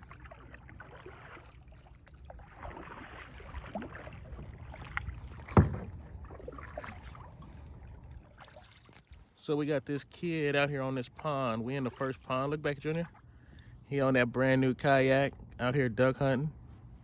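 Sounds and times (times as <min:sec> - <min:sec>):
paddle strokes in water: 0:00.0 - 0:09.4, 0:11.7 - 0:13.3.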